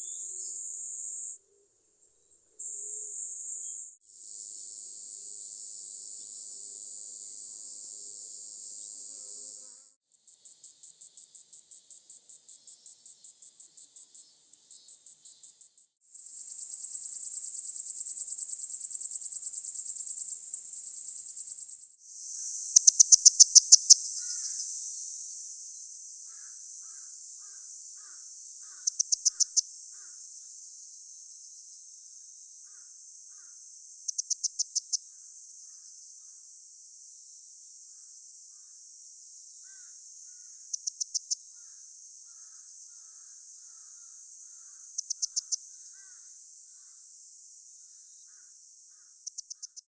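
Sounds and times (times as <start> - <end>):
cicadas buzzing: 0.0 - 1.5, 2.6 - 25.2.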